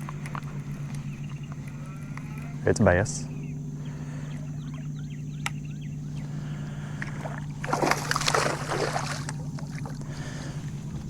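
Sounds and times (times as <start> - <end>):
steady low hum: 0.0 - 11.0
fish splashing in water: 6.8 - 10.6.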